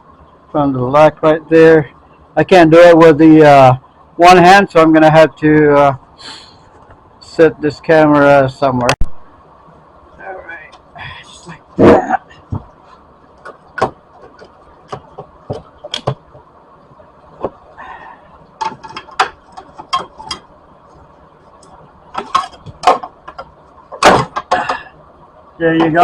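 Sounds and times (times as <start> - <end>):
car parts clicking and knocking: 13.4 - 16.5, 17.4 - 17.6, 18.6 - 20.5, 21.6 - 24.9, 25.7 - 26.0.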